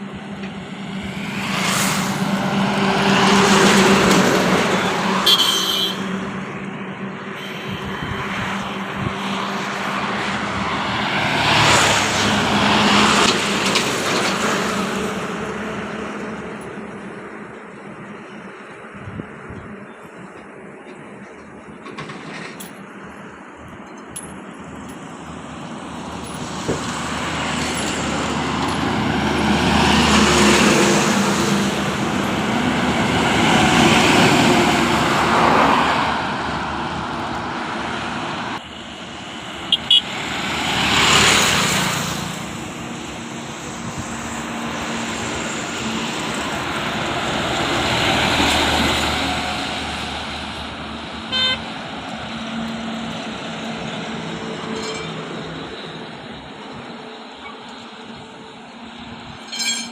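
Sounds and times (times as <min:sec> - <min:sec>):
heavy vehicles passing: 0:00.0 - 0:59.9
short horn toots: 0:05.2 - 0:06.1.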